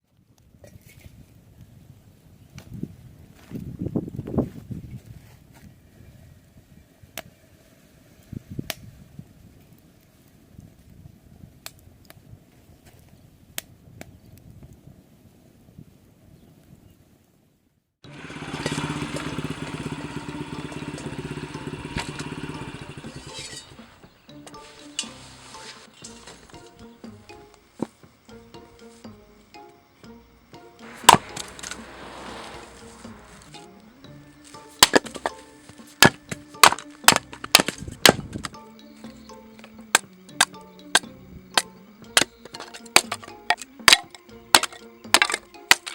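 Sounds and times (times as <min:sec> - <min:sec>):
small motorcycle engine running: 0:18.0 - 0:24.1, 0:30.8 - 0:38.0
soft background music: 0:24.1 - 0:45.9
wooden chopping strikes: 0:30.8 - 0:33.7, 0:34.5 - 0:38.6, 0:39.6 - 0:45.9.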